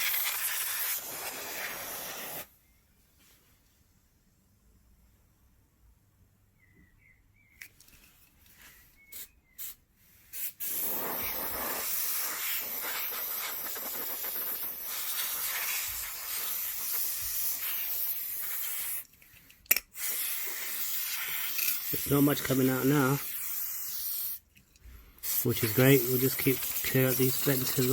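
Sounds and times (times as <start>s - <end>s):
compressed air spraying: 0.0s - 2.5s, 9.1s - 19.1s, 19.9s - 24.4s, 25.2s - 27.9s.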